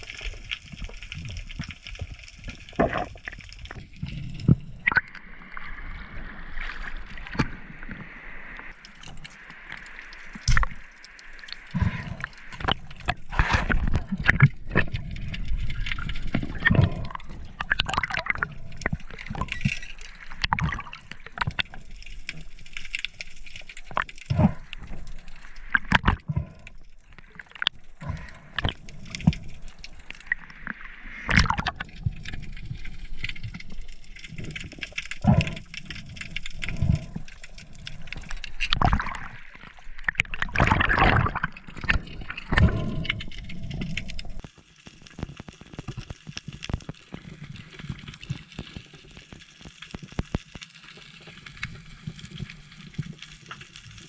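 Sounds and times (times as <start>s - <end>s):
water sloshing and gurgling: 0.0s - 54.0s
knocks and splashes: 31.3s - 31.9s, 40.1s - 43.0s.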